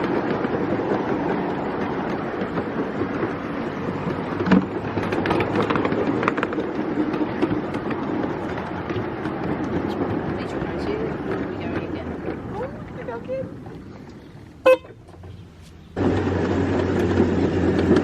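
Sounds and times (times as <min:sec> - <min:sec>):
wheels rumbling on rail: 0:00.0 - 0:18.0.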